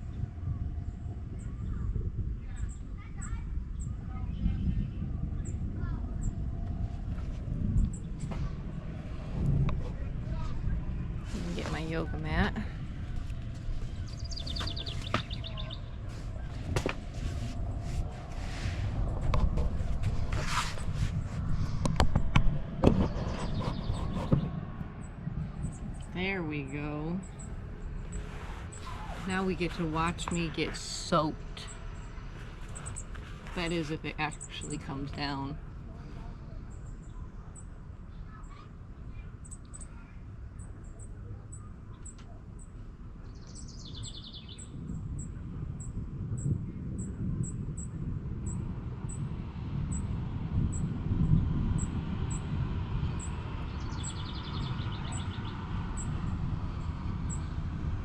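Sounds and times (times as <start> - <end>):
steady low rumble: 0.0 - 58.0
yoga mat swishing: 16.1 - 21.6, 28.2 - 30.0.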